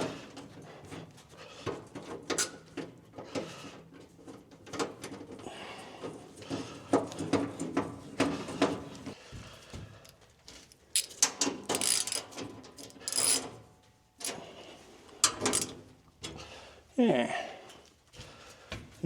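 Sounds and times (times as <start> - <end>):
knocks clicks and rattles: 11.0 - 13.6, 15.2 - 15.8.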